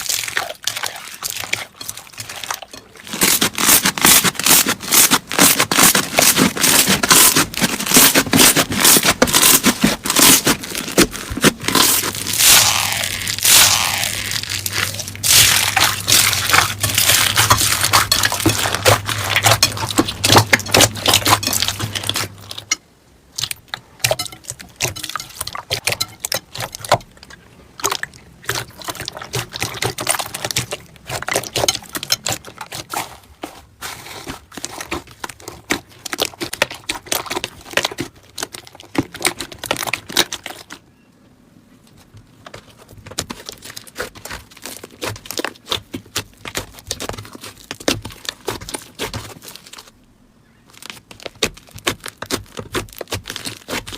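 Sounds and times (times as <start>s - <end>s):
slime crackling and popping: 0.0s - 27.0s, 27.8s - 32.9s, 43.0s - 49.9s, 50.7s - 53.9s.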